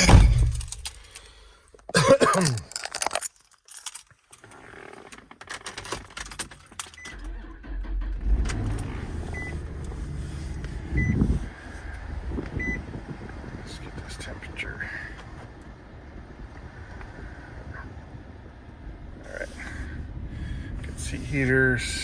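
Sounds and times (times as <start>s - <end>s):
keys jangling in ignition: 0.0s - 1.3s, 2.0s - 7.4s
car engine cranking and idling: 4.4s - 22.0s.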